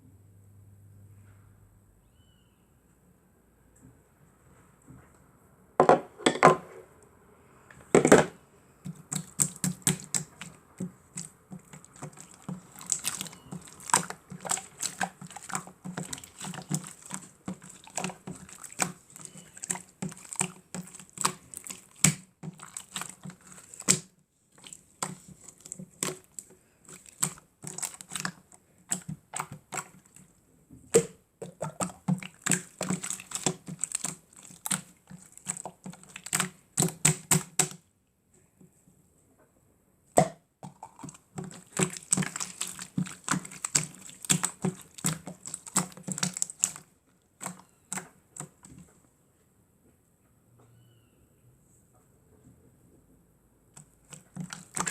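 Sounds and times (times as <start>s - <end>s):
slime squished by hand: 8.8s - 30.3s, 30.9s - 37.8s, 40.2s - 48.8s, 53.8s - 54.9s.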